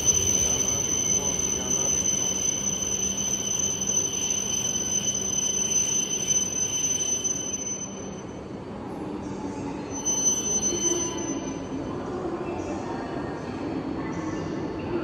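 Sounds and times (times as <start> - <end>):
train rumbling past: 0.0 - 5.6
thin high whine: 0.0 - 8.6, 9.8 - 11.8.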